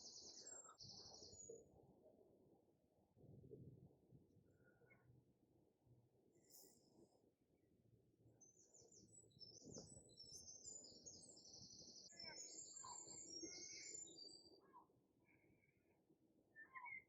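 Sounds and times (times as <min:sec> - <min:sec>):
faint birdsong chirps and trills: 0:00.0 - 0:02.6, 0:08.0 - 0:17.0.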